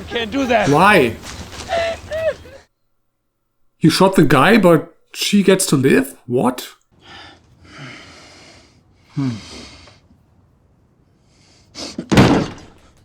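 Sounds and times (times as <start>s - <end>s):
person breathing heavily: 7.0s - 10.1s.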